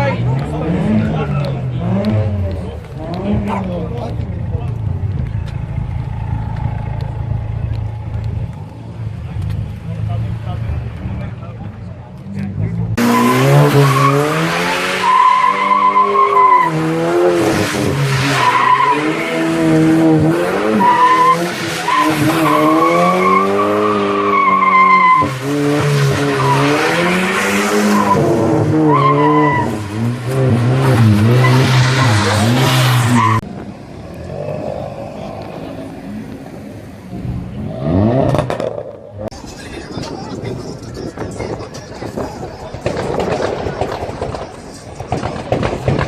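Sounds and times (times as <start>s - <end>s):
car engine revving hard: 13.0s - 33.4s.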